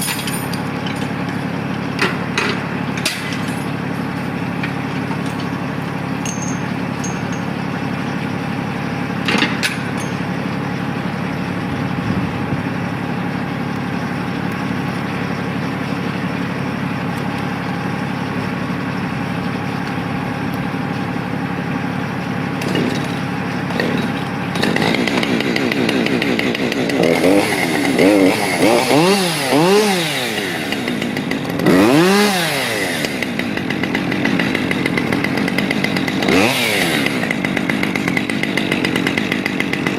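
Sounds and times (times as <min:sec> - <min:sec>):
engine running steadily: 0:00.0 - 0:39.9
chainsaw revving: 0:21.8 - 0:39.9.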